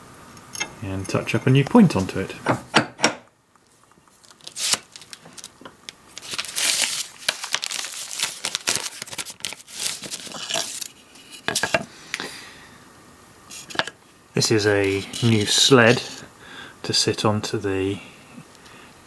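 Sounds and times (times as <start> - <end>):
rasping and rustling: 14.7 - 16.3.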